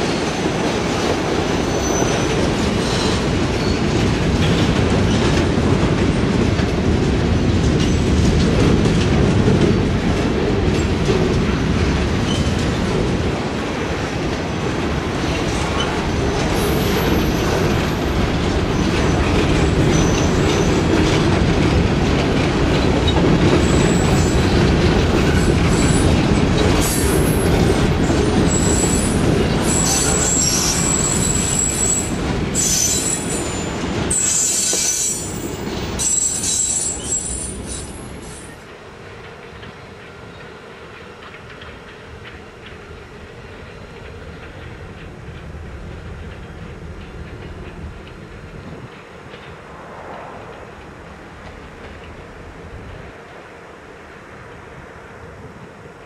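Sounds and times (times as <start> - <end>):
wheels clacking over rail joints: 0.0 - 53.6
train cars rumbling: 0.0 - 56.0
high-pitched wheel squeals: 28.5 - 38.6.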